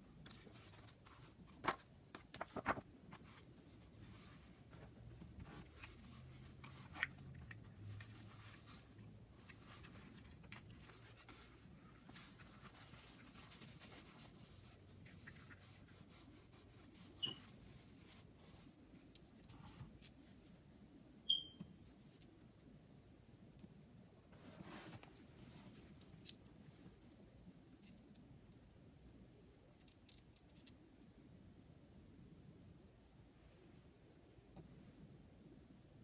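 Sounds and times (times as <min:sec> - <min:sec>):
hands rustling cards: 0:00.3 - 0:03.6.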